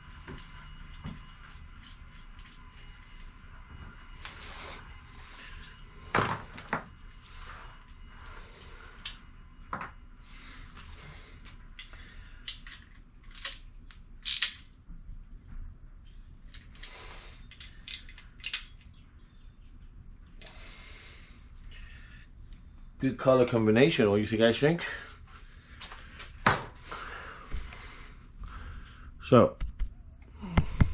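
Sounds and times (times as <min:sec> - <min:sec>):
hand tools and metal parts clinking: 0:11.4 - 0:14.7, 0:16.4 - 0:19.0.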